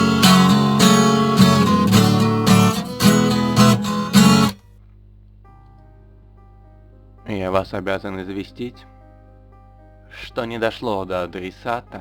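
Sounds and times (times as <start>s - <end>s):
strummed acoustic guitar music: 0.0s - 4.6s
faint sparse background music: 0.2s - 12.0s.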